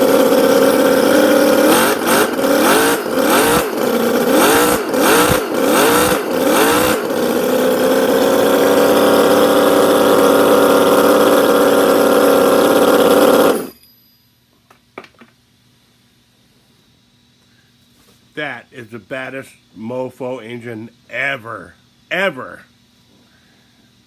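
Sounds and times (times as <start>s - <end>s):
model engine revving: 0.0s - 13.7s.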